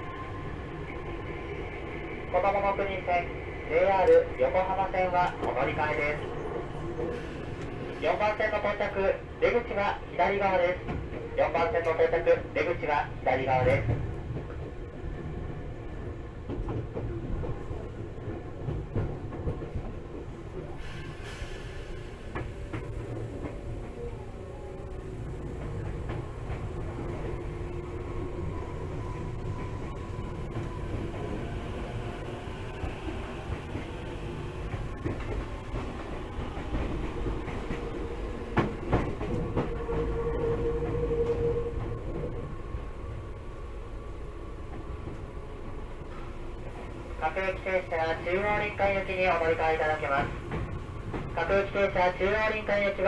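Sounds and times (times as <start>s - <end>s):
train wheel and track rumble: 0.0s - 53.0s
clacks over rail joints: 16.4s - 20.6s, 25.5s - 27.4s, 34.6s - 42.3s, 47.2s - 53.0s.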